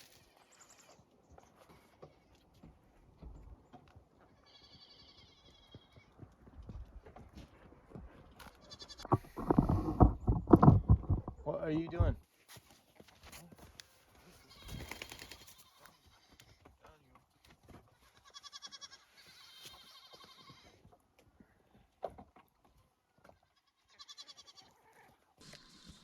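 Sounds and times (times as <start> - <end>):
goats bleating faintly: 23.3 - 26.0.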